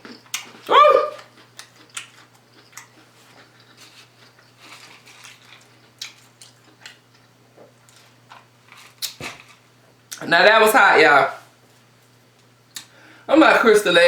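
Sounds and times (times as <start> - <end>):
soft chewing: 0.0 - 10.2
low electrical hum: 0.0 - 14.0.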